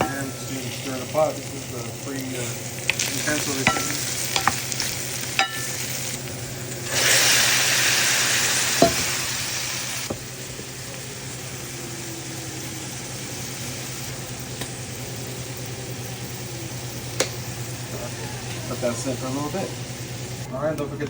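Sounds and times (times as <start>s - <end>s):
vegetables sizzling in frying pan: 0.0s - 20.5s
utensil tapping pan: 3.3s - 5.9s, 8.8s - 9.1s.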